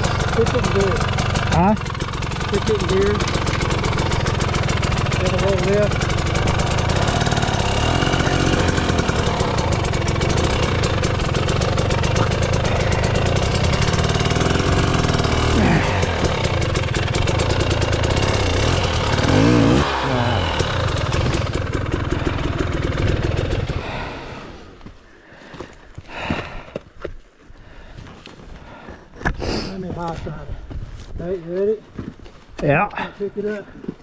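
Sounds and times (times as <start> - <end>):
dirt bike engine revving: 0.0 - 24.6.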